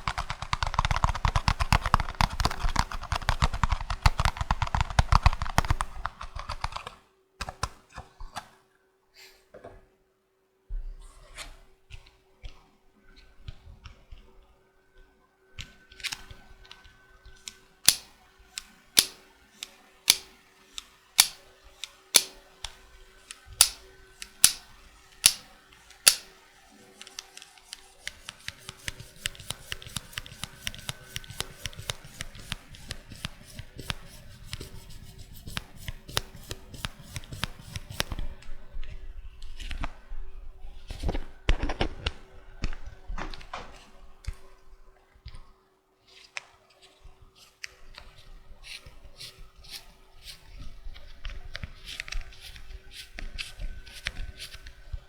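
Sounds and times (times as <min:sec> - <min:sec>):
tapping and scratching on plastic: 0:00.0 - 0:07.0.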